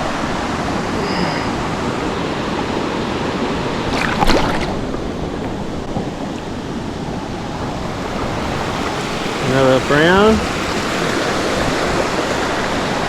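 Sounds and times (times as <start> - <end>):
creek water over rocks: 0.0 - 13.0
sharp splash or clatter: 3.9 - 5.0.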